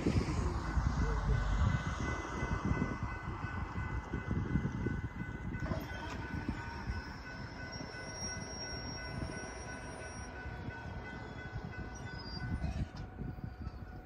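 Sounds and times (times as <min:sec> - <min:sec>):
gusty low rumble: 0:00.0 - 0:07.6
steady high-pitched tones: 0:00.0 - 0:12.8
distant freight train: 0:00.0 - 0:14.0.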